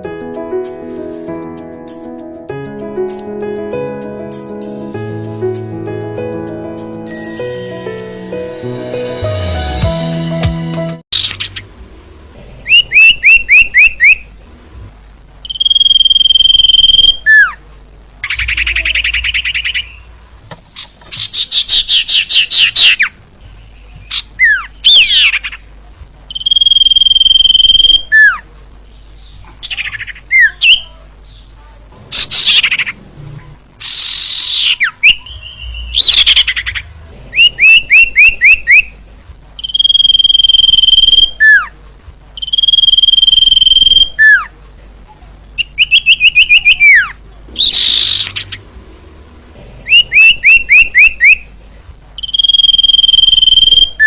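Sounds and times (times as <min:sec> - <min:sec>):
songbird whistles and trills: 0:15.5 - 0:17.5, 0:26.3 - 0:28.4, 0:39.6 - 0:41.7, 0:42.4 - 0:44.5, 0:45.6 - 0:48.4, 0:49.9 - 0:51.4, 0:52.2 - 0:54.0.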